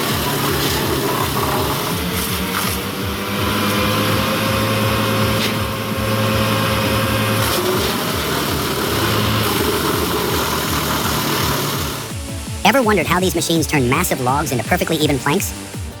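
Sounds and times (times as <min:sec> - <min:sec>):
heavy machine engine running: 0:00.0 - 0:12.4.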